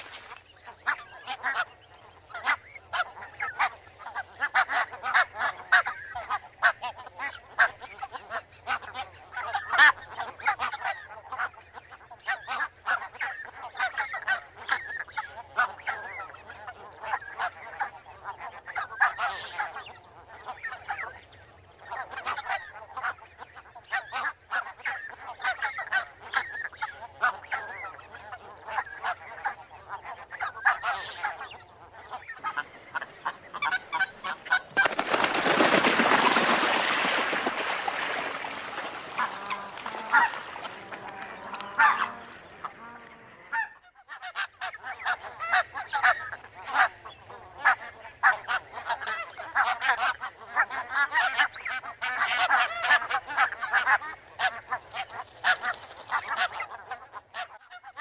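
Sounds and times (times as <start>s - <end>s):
geese honking: 0.0s - 58.0s.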